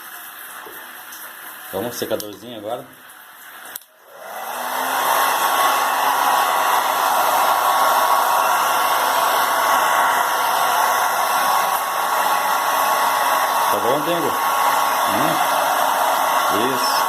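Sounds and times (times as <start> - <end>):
hair dryer blowing with faint whine: 3.7 - 17.0.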